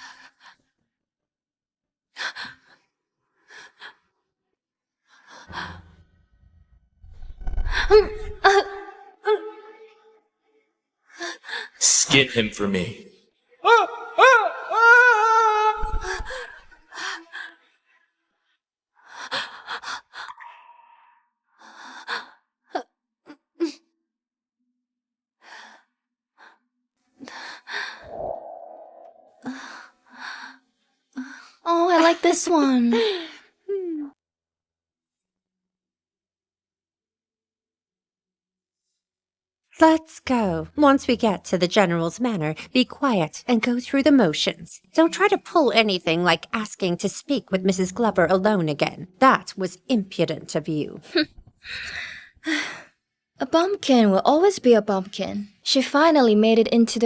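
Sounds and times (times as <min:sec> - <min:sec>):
person breathing with sighs and gasps: 0:19.0 - 0:22.5, 0:51.6 - 0:53.0
low rumble: 0:28.0 - 0:29.4.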